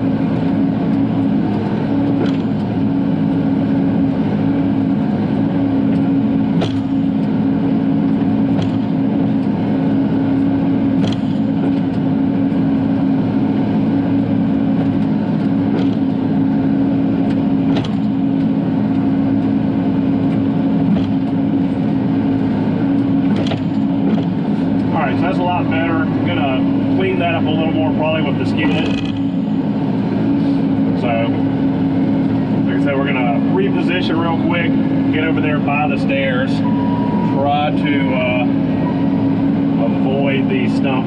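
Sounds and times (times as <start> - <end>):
excavator diesel engine running: 0.0 - 41.0
sharp machine knocks: 6.6 - 7.0.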